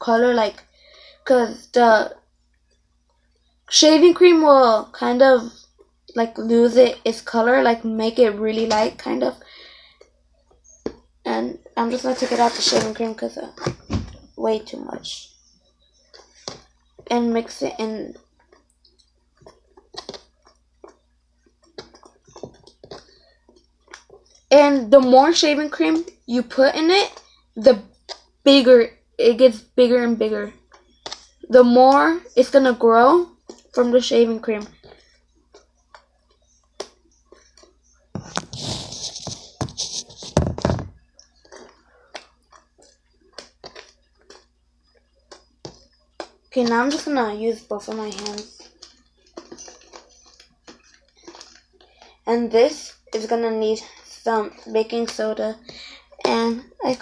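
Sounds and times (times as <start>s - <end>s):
slime squelching and slapping: 45.3s - 52.0s.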